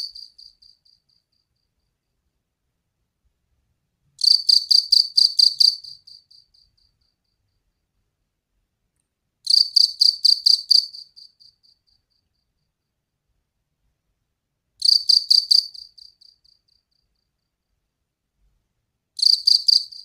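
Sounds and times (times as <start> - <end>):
cricket chirping: 0.0 - 2.5, 4.2 - 8.0, 9.4 - 13.3, 14.8 - 18.0, 19.2 - 20.0.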